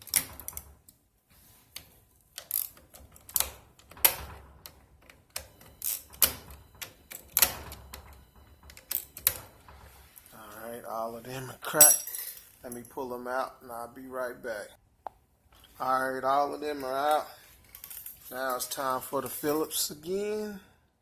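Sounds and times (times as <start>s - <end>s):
fasteners cracking loose: 0.0s - 1.0s, 1.7s - 9.5s.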